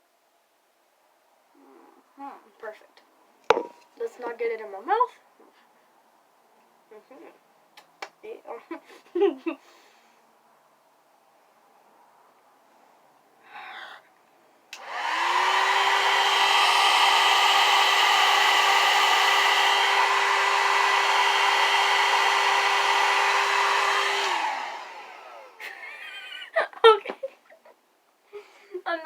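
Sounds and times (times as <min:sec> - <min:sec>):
hair dryer switch click: 0:14.8 - 0:15.0
hair dryer running: 0:14.8 - 0:26.2.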